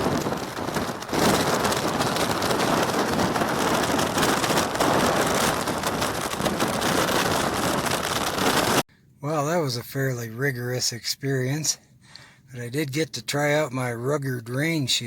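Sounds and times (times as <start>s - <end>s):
blizzard wind on microphone: 0.0s - 8.8s
snow pelting rain cover: 0.0s - 8.8s.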